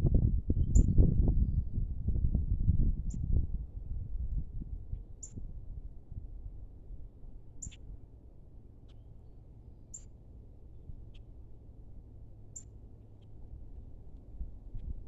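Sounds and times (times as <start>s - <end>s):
low background rumble: 0.0s - 15.0s
small bird high-pitched call: 0.6s - 1.6s, 5.2s - 5.4s, 7.6s - 7.9s, 9.9s - 10.2s, 12.5s - 13.4s
faint bird chips: 7.6s - 7.8s.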